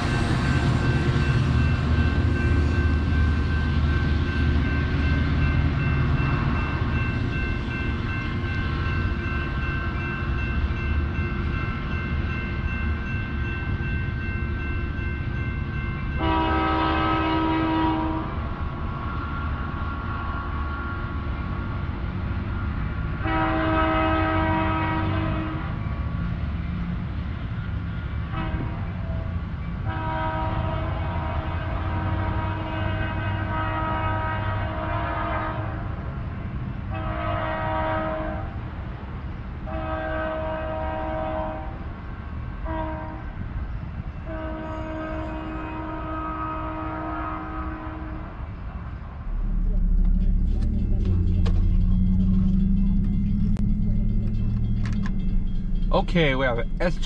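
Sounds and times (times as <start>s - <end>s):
train rumbling along tracks: 0.0s - 57.0s
distant train horn blasts: 16.1s - 21.8s, 23.0s - 26.0s, 28.2s - 36.1s, 36.8s - 38.7s, 39.6s - 43.4s, 44.1s - 57.0s.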